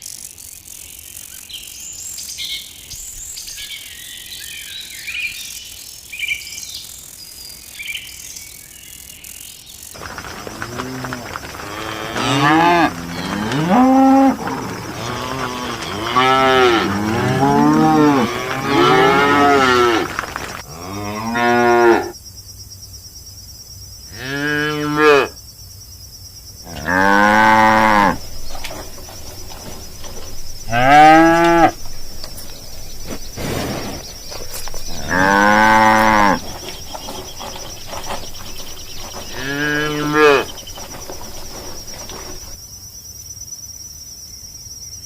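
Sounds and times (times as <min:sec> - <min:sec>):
cows mooing: 0:10.0 - 0:22.1, 0:24.2 - 0:25.3, 0:26.7 - 0:42.6.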